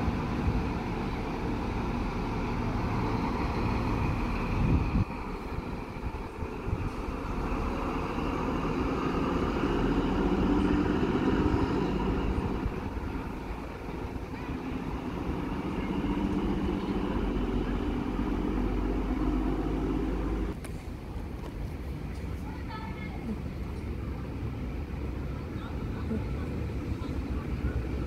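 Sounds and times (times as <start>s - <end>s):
electric train humming: 0.0s - 20.6s.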